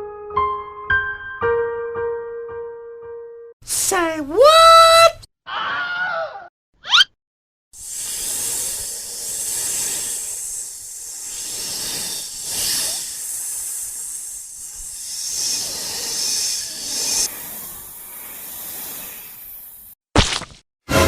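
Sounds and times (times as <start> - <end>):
hissing rush of noise: 7.8 - 20.0.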